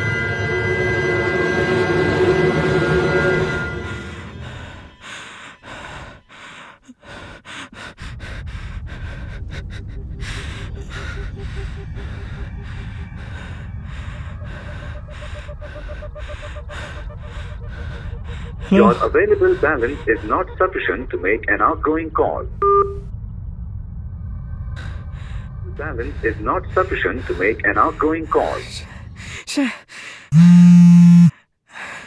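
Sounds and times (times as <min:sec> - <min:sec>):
steady low rumble: 0:03.4 - 0:30.3
person breathing hard and gasping: 0:04.0 - 0:20.2, 0:31.7 - 0:32.0.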